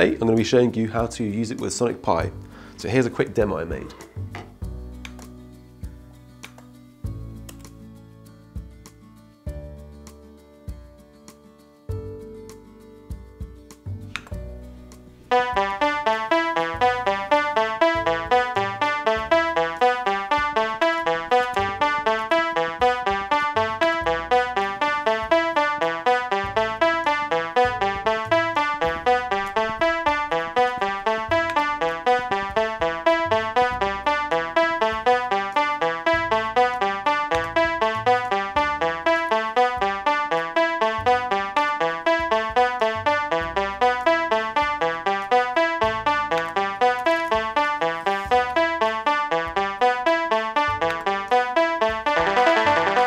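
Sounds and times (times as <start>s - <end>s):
electronic synthesizer music: 15.3s - 53.0s.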